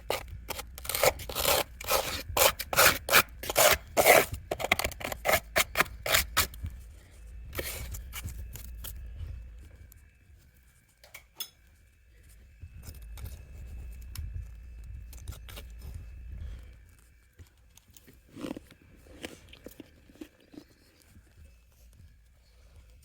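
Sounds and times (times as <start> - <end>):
mouth chewing frost: 17.8 - 21.4.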